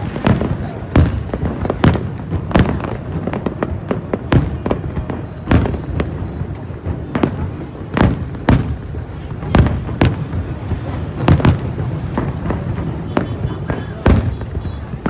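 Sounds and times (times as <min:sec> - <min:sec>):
firework shell bursts: 0:05.7 - 0:15.0
steady rumble: 0:08.7 - 0:15.0.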